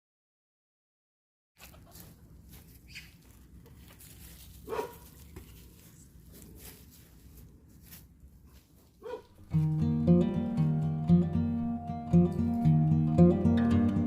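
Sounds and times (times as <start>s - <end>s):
dog barking faintly: 4.6s - 5.2s, 9.0s - 9.4s.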